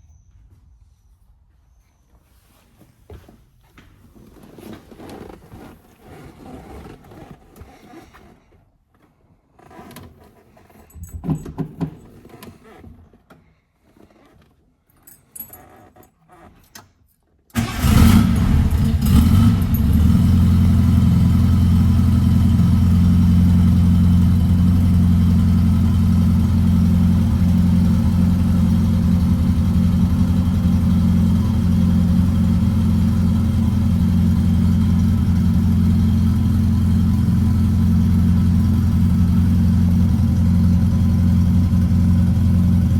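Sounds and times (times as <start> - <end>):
car engine starting and idling: 17.6 - 42.9.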